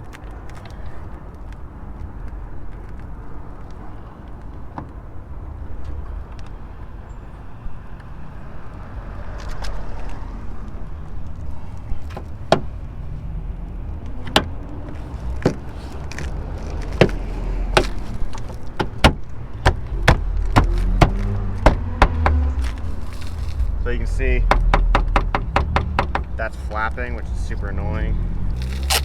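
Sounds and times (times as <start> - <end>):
road rumble: 0.0 - 29.0
plastic panel flapping against car: 14.1 - 23.8.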